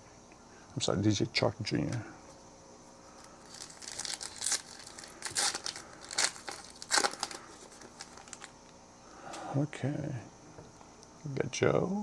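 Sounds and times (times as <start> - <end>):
foil wrapper crinkling: 3.2 - 8.6.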